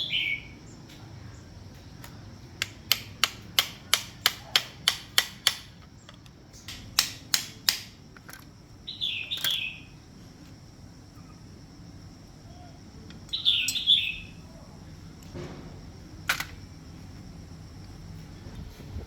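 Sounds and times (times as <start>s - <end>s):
downward-sweeping chirp: 12.5s - 14.5s.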